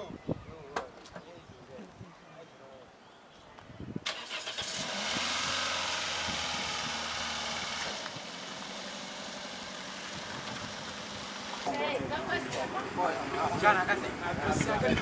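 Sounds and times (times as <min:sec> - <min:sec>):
car engine starting and running: 0:04.0 - 0:11.7.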